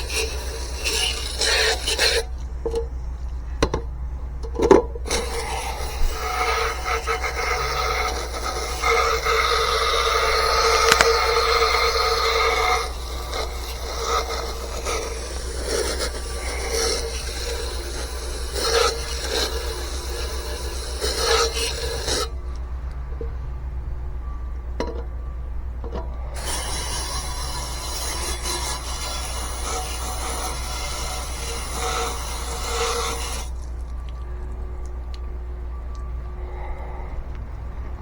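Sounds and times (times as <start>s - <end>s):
brush scrubbing metal: 0.0s - 2.4s, 5.1s - 22.4s, 26.4s - 34.0s
steady low hum: 0.0s - 38.0s.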